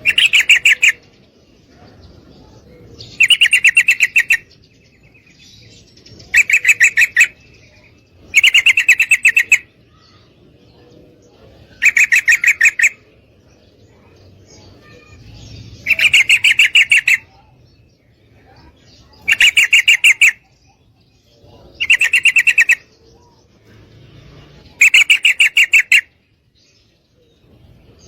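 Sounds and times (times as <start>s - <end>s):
bird rapid chattering calls: 0.0s - 1.2s, 2.5s - 10.2s, 11.6s - 13.1s, 14.8s - 26.2s.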